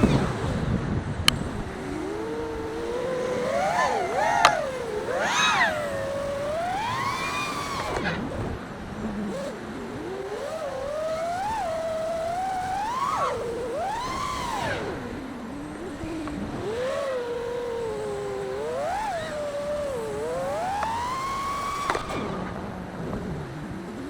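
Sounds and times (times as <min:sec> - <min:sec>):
drone motors whining: 0:00.0 - 0:24.0
sharp click: 0:20.7 - 0:22.5.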